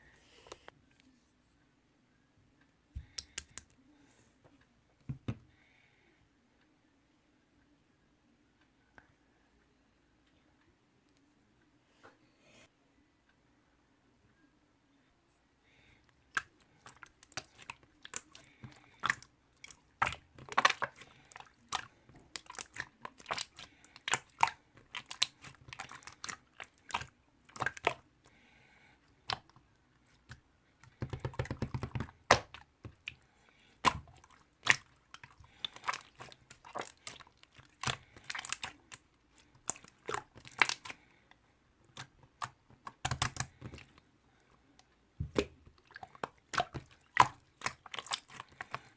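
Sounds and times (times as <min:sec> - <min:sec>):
slime squished by hand: 0:16.3 - 0:28.0, 0:30.2 - 0:33.2, 0:33.8 - 0:41.1, 0:41.8 - 0:44.0, 0:45.2 - 0:48.9.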